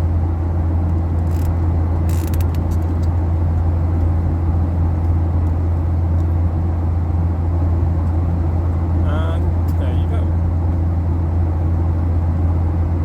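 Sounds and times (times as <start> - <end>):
airplane cabin drone: 0.0 - 13.0.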